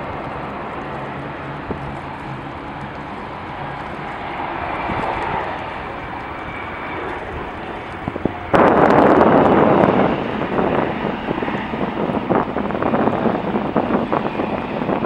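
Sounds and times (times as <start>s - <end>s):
distant jet engines rushing: 0.0s - 15.0s
wind buffeting microphone: 0.0s - 15.0s.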